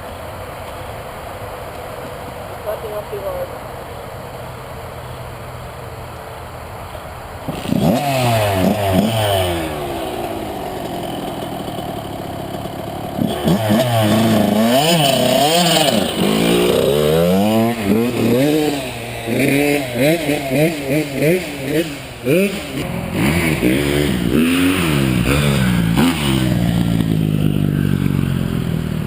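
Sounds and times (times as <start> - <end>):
dirt bike engines revving: 7.3 - 29.0.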